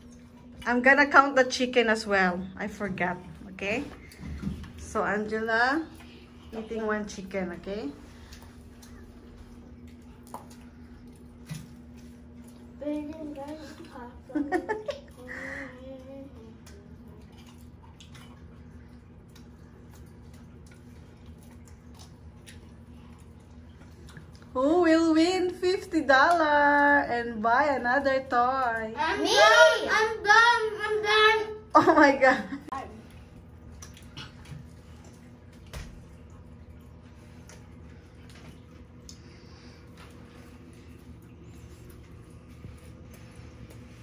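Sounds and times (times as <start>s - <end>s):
steady low hum: 0.0s - 44.0s
children chewing: 3.8s - 4.9s, 5.8s - 7.2s, 7.9s - 24.8s, 32.6s - 44.0s.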